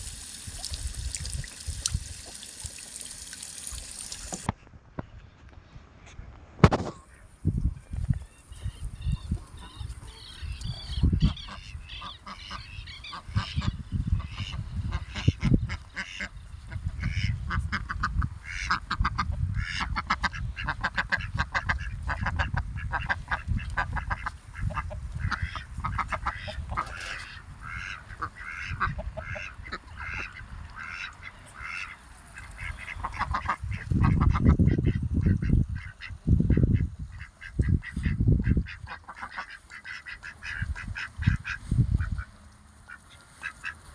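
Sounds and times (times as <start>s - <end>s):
ducks quacking: 9.2s - 43.9s.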